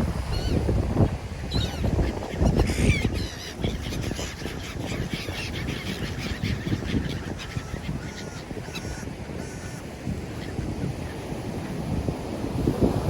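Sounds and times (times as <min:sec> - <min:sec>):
wind rushing: 0:00.0 - 0:02.0
flock of birds calling: 0:01.4 - 0:11.9.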